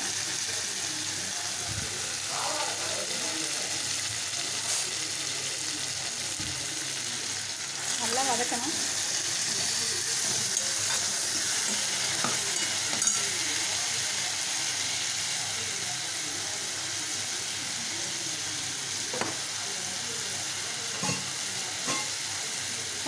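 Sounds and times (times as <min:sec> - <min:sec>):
tomatoes sizzling in oil: 0:00.0 - 0:23.0.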